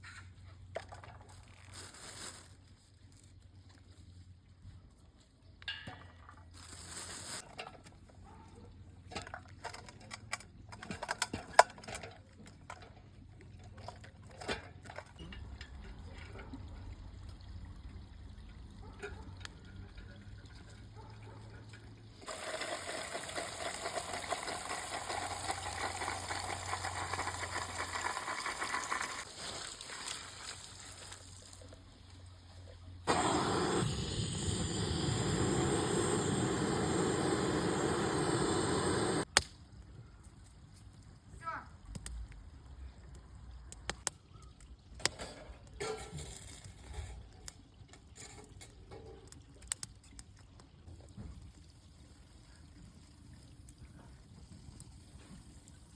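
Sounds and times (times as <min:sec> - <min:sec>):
liquid trickling and bubbling: 0:13.0 - 0:31.9, 0:42.5 - 0:55.9
campfire crackles and knocks: 0:43.7 - 0:44.2, 0:45.0 - 0:51.6.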